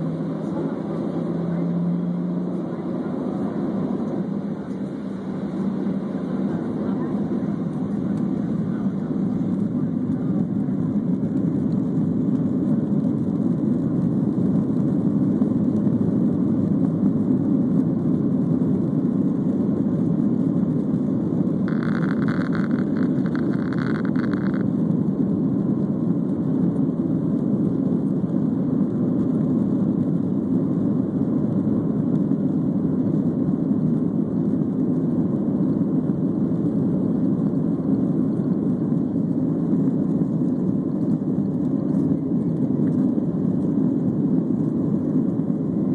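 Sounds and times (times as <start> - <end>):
jet engine cabin rumble: 0.0 - 45.9.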